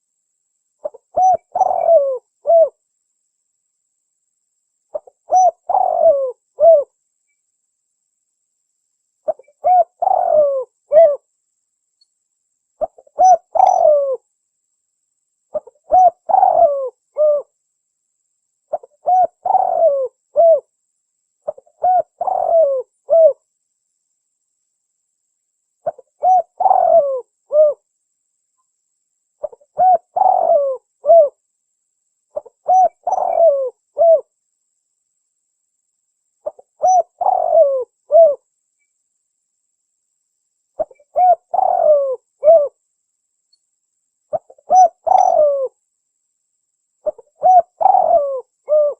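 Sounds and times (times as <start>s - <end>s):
dove cooing: 0.8s - 2.8s, 4.9s - 6.9s, 9.2s - 11.2s, 12.8s - 14.2s, 15.5s - 17.5s, 18.7s - 20.7s, 21.4s - 23.4s, 25.8s - 27.8s, 29.4s - 31.4s, 32.4s - 34.3s, 36.4s - 38.4s, 40.8s - 42.8s, 44.3s - 45.8s, 47.0s - 48.9s.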